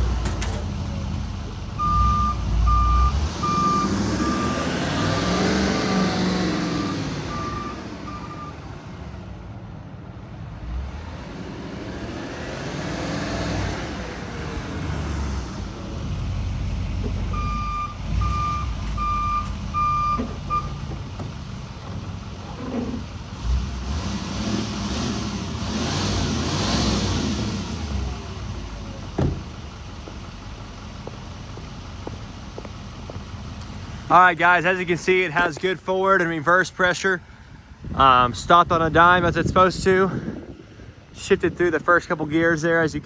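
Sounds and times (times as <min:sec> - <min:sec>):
truck engine accelerating: 0:00.0 - 0:43.0
back-up alarm beeping: 0:01.8 - 0:04.7, 0:06.8 - 0:08.6, 0:17.3 - 0:20.8.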